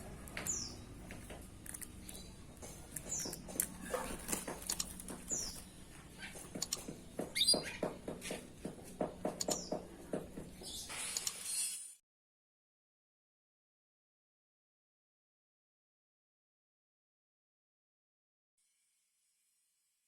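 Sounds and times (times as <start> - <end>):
sharp clicks and taps: 6.4 - 10.5.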